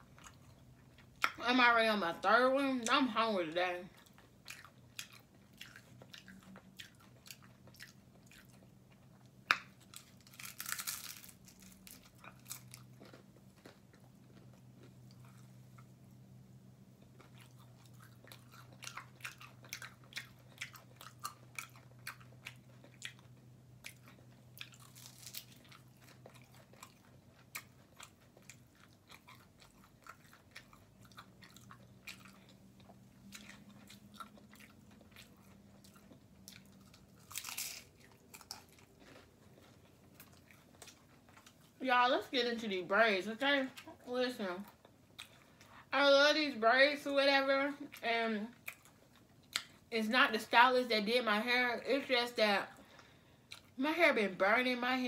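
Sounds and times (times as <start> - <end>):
person chewing tacos: 0.0 - 1.4, 3.9 - 41.8, 44.6 - 45.9, 47.8 - 49.9, 52.8 - 53.8
crunchy bites: 9.5 - 15.4, 33.3 - 41.0.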